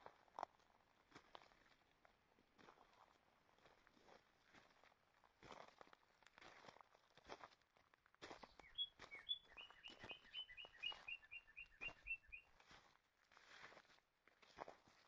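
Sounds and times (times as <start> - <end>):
footsteps on forest trail: 8.2 - 15.0
songbird singing repeated notes: 8.4 - 12.6.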